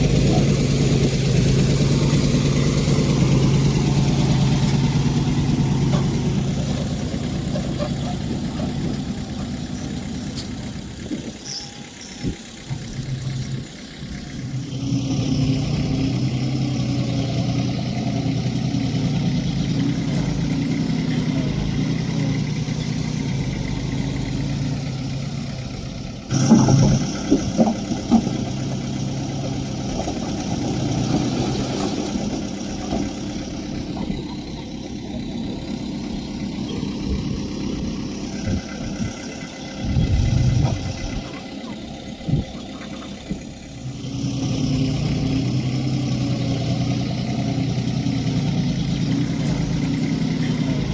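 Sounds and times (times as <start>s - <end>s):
diesel engine of heavy machinery: 0.0s - 50.9s
loud clanking and knocks: 4.7s - 11.3s, 26.3s - 28.8s.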